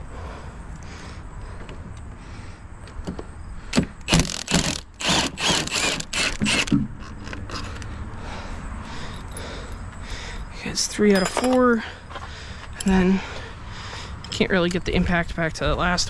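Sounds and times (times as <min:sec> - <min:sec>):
impact wrench bursts: 0:03.7 - 0:06.8.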